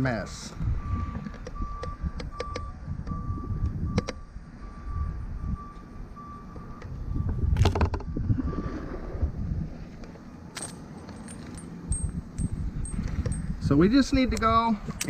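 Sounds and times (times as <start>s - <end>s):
vehicle reversing beeper: 0.7s - 9.5s.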